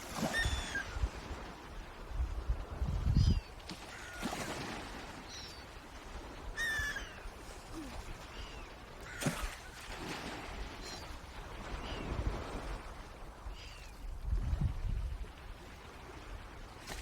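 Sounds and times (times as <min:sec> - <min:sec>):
birds calling: 0:00.3 - 0:00.9.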